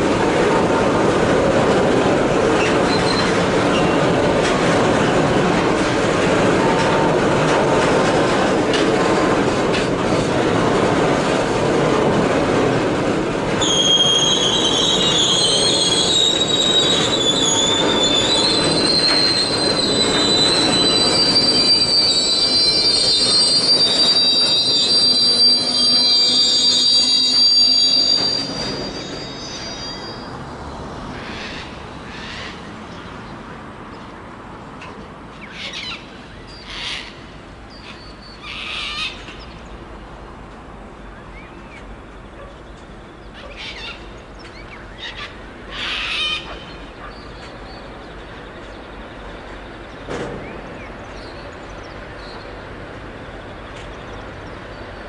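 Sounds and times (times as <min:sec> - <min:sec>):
train wheels rumbling on rails: 0:00.0 - 0:55.0
metallic wheel squeal: 0:02.6 - 0:04.0, 0:13.6 - 0:30.4.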